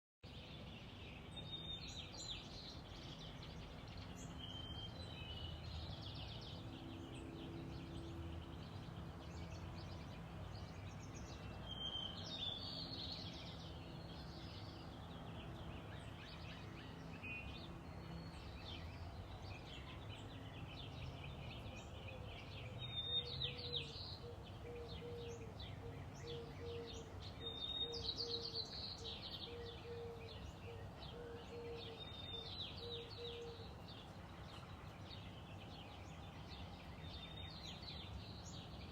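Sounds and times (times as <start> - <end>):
birds singing trills: 0.2 - 38.9.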